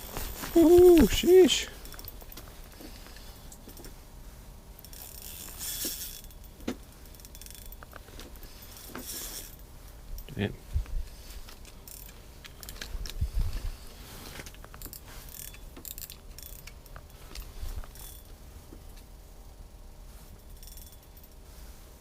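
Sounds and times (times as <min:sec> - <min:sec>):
fishing reel clicking: 0:04.8 - 0:08.0, 0:11.5 - 0:13.2, 0:14.5 - 0:18.3.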